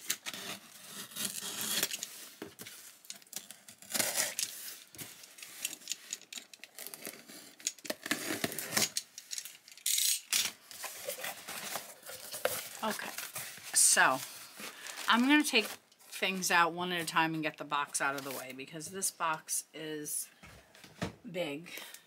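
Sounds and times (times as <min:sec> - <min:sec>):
knife slicing packing tape: 0:00.0 - 0:02.1, 0:03.4 - 0:04.6, 0:06.8 - 0:09.0
tape tearing: 0:00.0 - 0:16.2.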